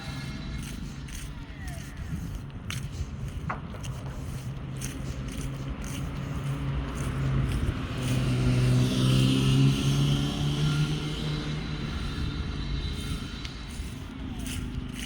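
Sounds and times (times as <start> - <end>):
vehicle engine passing by: 4.0 - 15.0.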